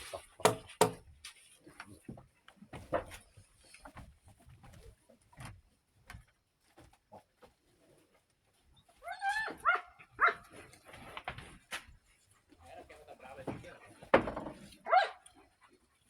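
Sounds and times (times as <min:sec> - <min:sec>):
faint knocks: 0:00.5 - 0:01.0
dog yelping barks: 0:09.6 - 0:10.4, 0:14.9 - 0:15.2.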